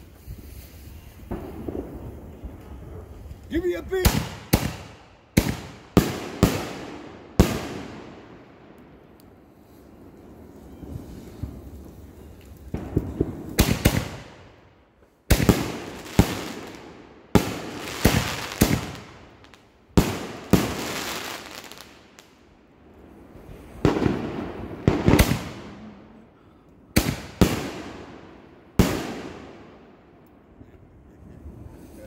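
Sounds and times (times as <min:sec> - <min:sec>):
fireworks bangs: 0:00.0 - 0:30.7.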